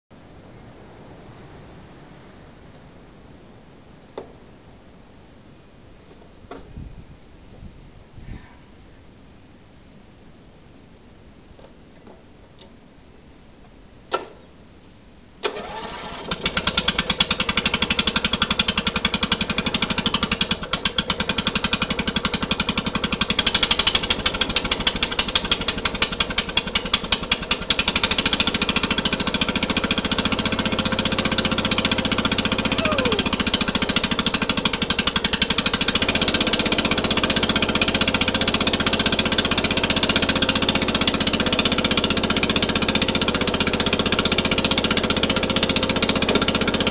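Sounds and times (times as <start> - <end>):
tractor engine running: 15.4 - 46.9.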